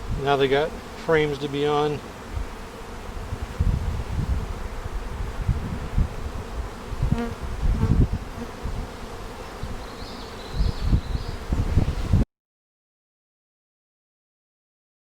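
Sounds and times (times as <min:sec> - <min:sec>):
bee humming close by: 0:00.0 - 0:12.2
bee swarm buzzing: 0:00.0 - 0:12.2
wind buffeting on microphone: 0:02.3 - 0:09.0, 0:10.5 - 0:12.2.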